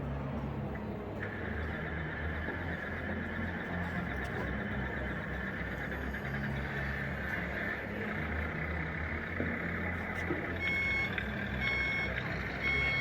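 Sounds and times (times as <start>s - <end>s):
simulated diesel engine rumble: 0.7s - 13.0s
reversing beeper: 10.6s - 13.0s.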